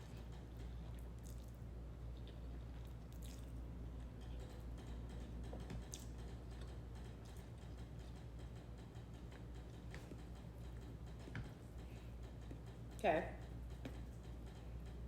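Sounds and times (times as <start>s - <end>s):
person chewing food: 0.0s - 8.4s
steady low hum: 0.0s - 15.0s.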